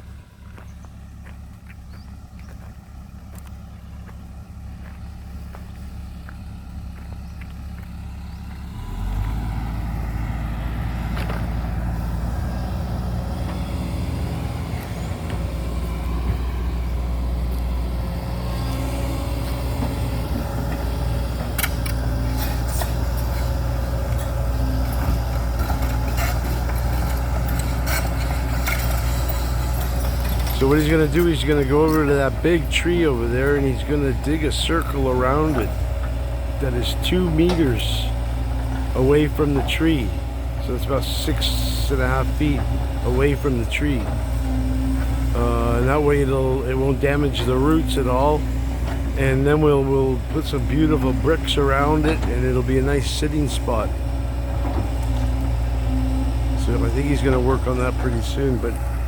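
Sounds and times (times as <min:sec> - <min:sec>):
backhoe diesel engine running: 0:00.0 - 0:59.0
metallic clanks: 0:24.1 - 0:32.8.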